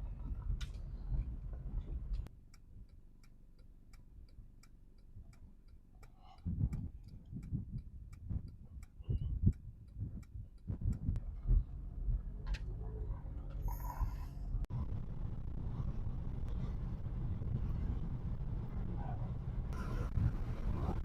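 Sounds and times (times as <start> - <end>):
low rumble: 0.0 - 21.0
dull low thuds: 6.3 - 13.1.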